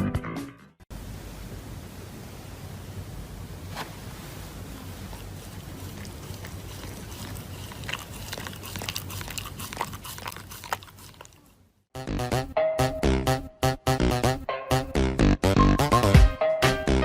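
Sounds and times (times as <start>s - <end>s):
background hiss: 0.9s - 7.9s
dog chewing and crunching: 4.7s - 11.7s.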